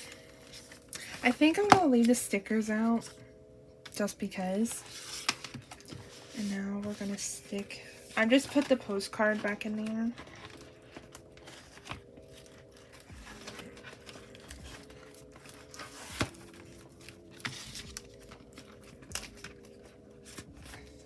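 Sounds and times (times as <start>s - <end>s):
soft background music: 0.0s - 21.0s
packaging crinkling: 4.8s - 21.0s.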